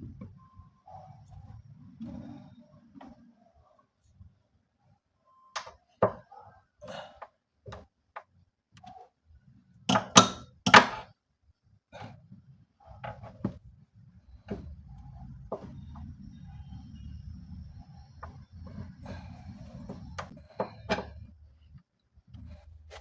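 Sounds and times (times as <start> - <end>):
low steady rumble: 13.5 - 23.0.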